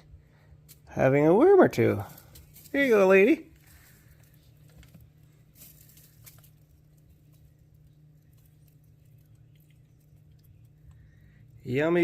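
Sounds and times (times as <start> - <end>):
hen pecking: 5.8 - 11.7.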